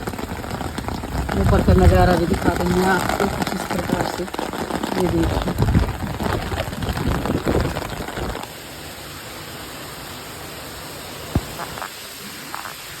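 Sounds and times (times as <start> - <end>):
heavy rain hissing: 0.0 - 13.0
short thump: 11.3 - 11.8.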